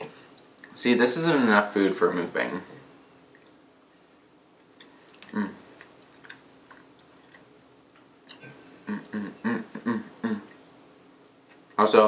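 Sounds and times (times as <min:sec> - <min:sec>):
chewing food: 0:04.7 - 0:08.4
voiced mouth sound: 0:05.2 - 0:06.4, 0:08.4 - 0:10.6.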